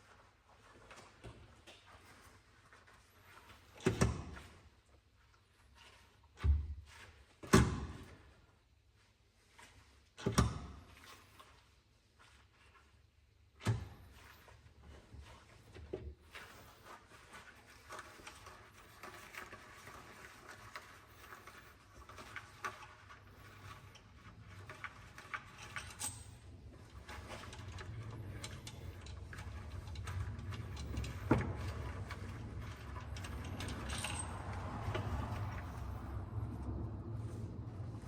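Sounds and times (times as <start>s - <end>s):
low background rumble: 26.4s - 38.0s.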